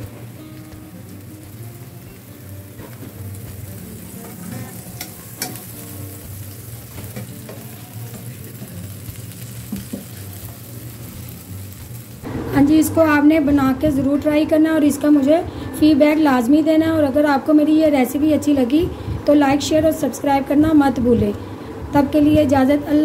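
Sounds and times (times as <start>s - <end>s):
potato patty sizzling in pan: 0.0s - 12.3s.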